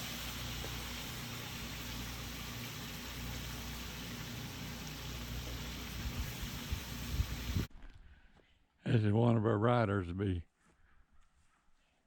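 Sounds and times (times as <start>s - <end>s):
potatoes sizzling in a pan: 0.0s - 7.7s.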